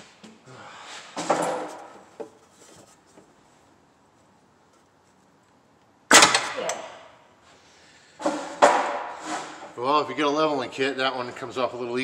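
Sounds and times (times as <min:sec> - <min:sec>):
scraping and rubbing: 0:08.3 - 0:09.7.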